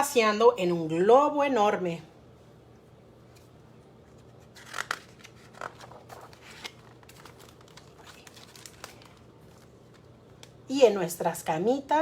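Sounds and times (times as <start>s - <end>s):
book pages rustling: 3.3s - 10.6s.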